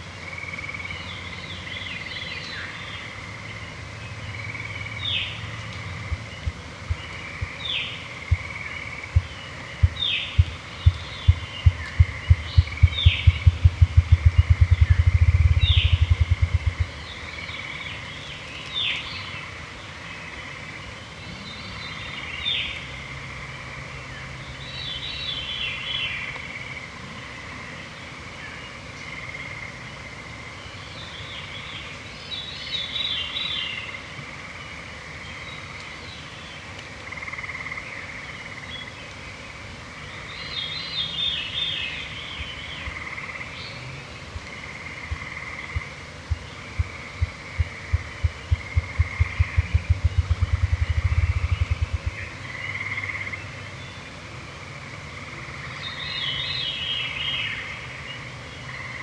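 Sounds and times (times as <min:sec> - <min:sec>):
songbirds singing: 0:00.2 - 0:59.0
frogs trilling: 0:03.0 - 0:18.1, 0:44.5 - 0:53.8
loud low thumps: 0:09.2 - 0:17.0, 0:46.3 - 0:52.3.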